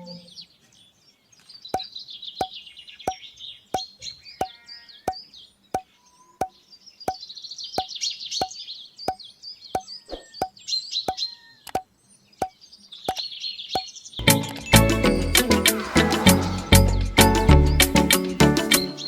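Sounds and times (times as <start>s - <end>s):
birds chirping and trilling: 0.0s - 19.0s
loud music: 14.2s - 19.0s.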